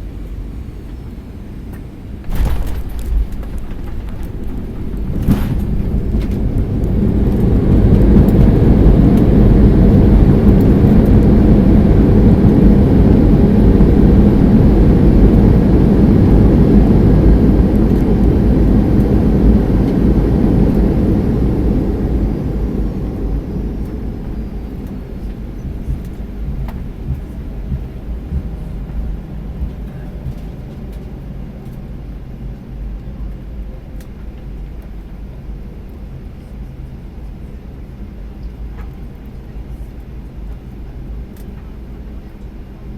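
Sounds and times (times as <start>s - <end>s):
jet engine reverse thrust roar: 0.0s - 31.8s
taxiing rumble: 2.1s - 30.7s
sharp bump: 2.2s - 6.6s.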